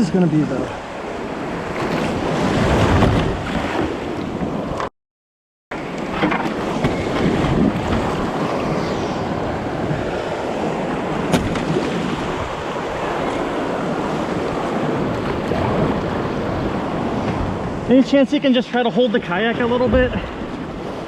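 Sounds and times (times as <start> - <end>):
waves washing around a kayak: 0.0 - 4.9, 5.8 - 21.0
wind buffeting microphone: 5.8 - 17.9.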